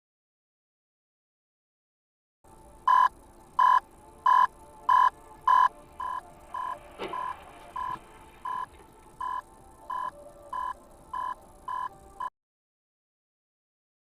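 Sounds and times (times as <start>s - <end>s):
electronic beeper beeping: 2.9s - 12.3s.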